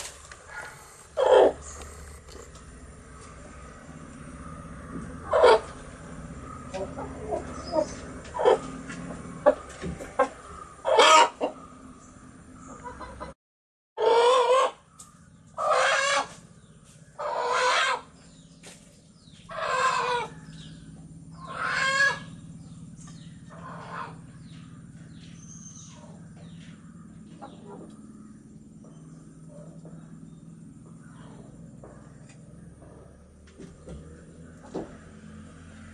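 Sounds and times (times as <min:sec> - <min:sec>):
faint high peeping: 0:00.0 - 0:03.1
chickens calling: 0:00.0 - 0:03.7, 0:04.5 - 0:11.9, 0:14.0 - 0:18.3, 0:19.4 - 0:30.2.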